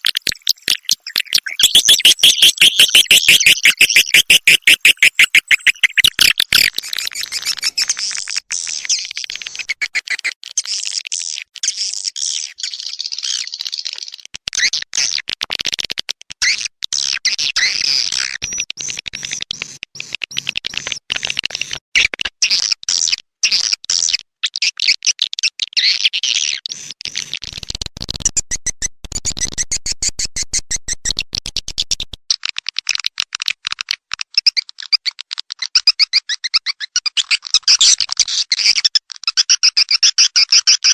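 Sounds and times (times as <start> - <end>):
swiftlets chirping: 0.0 - 10.4.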